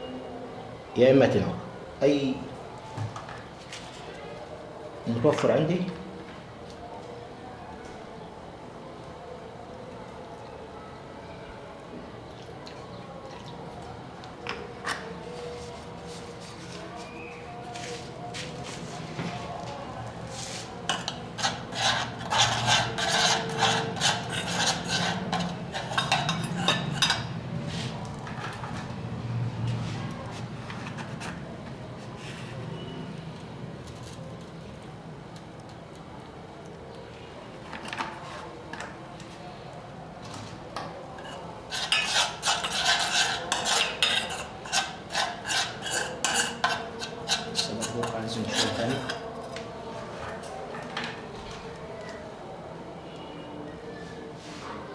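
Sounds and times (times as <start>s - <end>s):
utensil scraping a dish: 20.3s - 28.9s, 29.7s - 32.9s, 41.2s - 49.4s.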